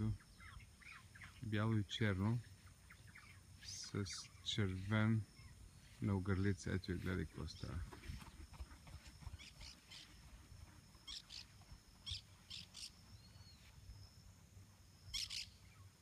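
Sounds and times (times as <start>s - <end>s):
high-pitched bird chirps: 15.1s - 15.7s.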